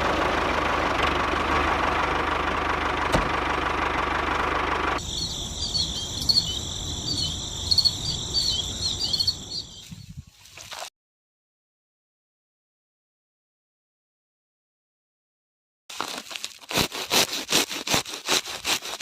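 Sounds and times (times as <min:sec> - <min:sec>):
high rapid chirping: 0:05.0 - 0:09.8.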